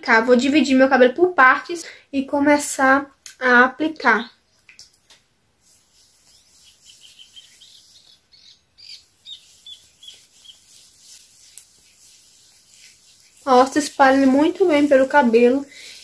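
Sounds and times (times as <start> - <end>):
hands rubbing wet hair: 4.6 - 16.0
bird chirping: 5.7 - 13.9.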